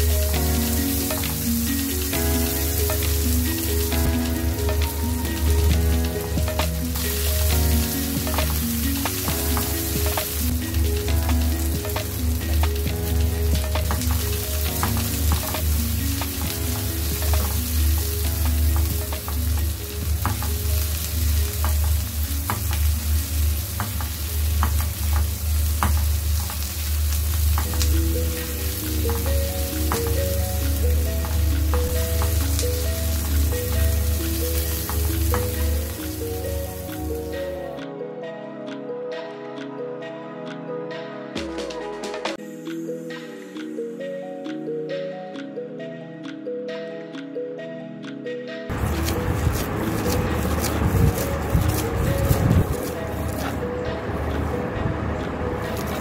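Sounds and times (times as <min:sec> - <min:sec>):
vegetables sizzling in oil: 0:00.0 - 0:37.4, 0:48.7 - 0:53.6.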